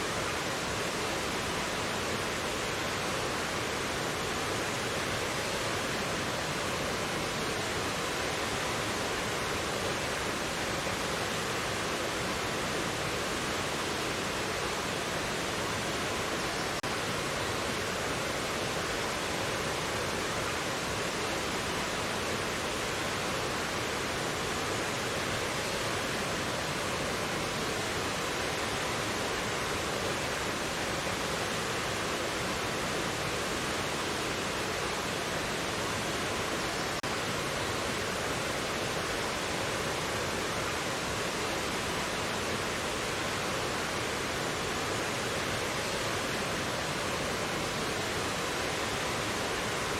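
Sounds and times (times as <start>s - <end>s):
stream rushing over rocks: 0.0s - 49.9s.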